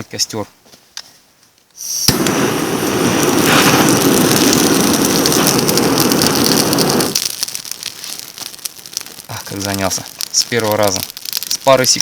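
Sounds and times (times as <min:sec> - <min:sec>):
gas torch flame hissing: 0:01.8 - 0:07.3.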